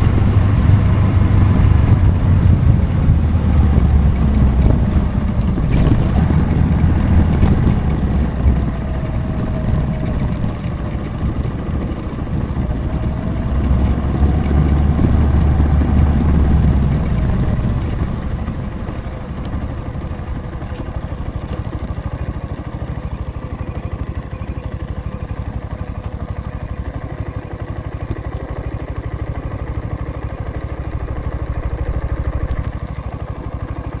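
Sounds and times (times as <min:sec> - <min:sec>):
wind noise on microphone: 0:00.0 - 0:21.0
motorcycle engine running: 0:00.0 - 0:34.0.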